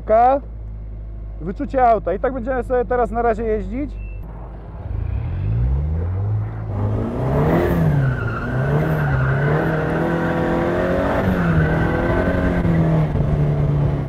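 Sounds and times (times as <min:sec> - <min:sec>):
car engine revving hard: 0:04.9 - 0:14.0.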